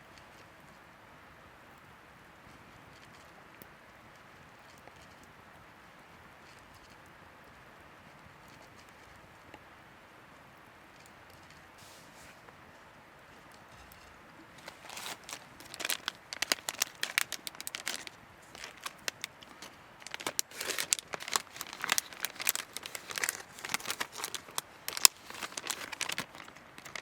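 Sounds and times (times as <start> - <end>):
crinkling and crackling: 11.0 - 27.0.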